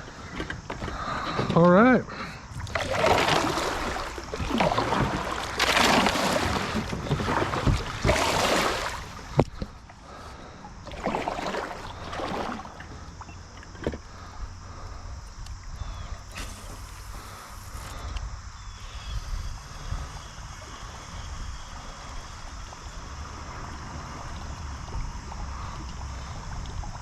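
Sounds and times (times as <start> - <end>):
kayak paddle splashing in water: 2.5 - 14.3, 16.2 - 18.0.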